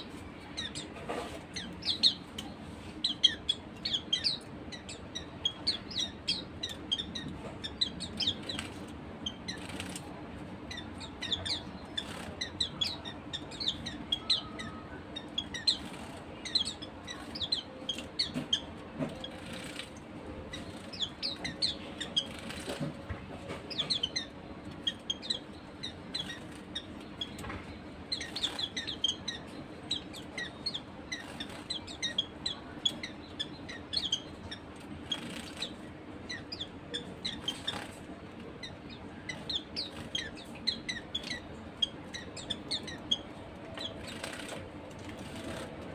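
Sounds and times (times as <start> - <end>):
birds chirping high: 0.0 - 45.9
wing flutters: 20.6 - 23.0, 37.4 - 38.1, 43.8 - 45.9.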